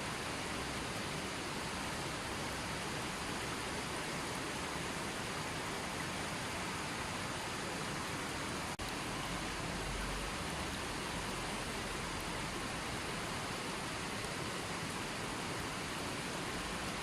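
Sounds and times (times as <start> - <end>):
running water: 0.0 - 17.0.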